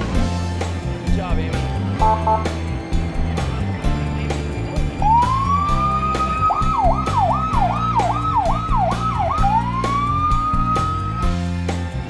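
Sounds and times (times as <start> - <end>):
background music with steady beat: 0.0 - 12.0
emergency vehicle siren: 5.0 - 11.5.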